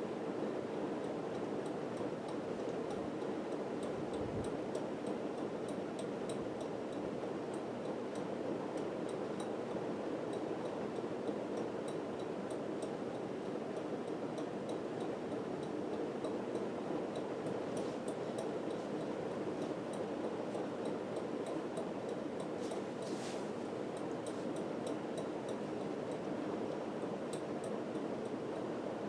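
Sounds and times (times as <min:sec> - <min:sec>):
ceiling fan whirring: 0:00.0 - 0:29.0.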